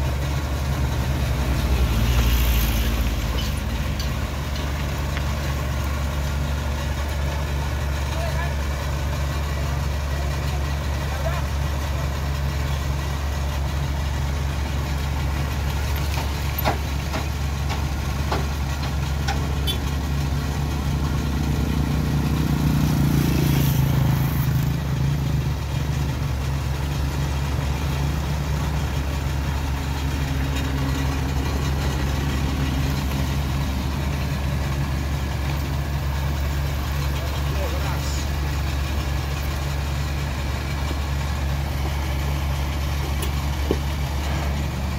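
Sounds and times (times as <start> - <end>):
truck engine idling: 0.0 - 44.9.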